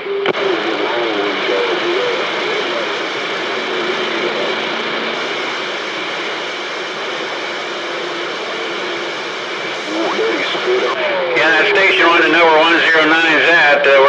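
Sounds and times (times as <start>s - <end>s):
radio static hiss: 0.0s - 14.0s
faint warbling voice fragments: 9.8s - 14.0s.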